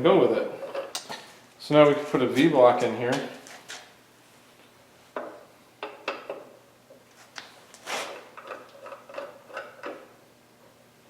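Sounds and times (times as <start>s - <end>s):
metal parts clicking and clunking: 8.2s - 10.1s.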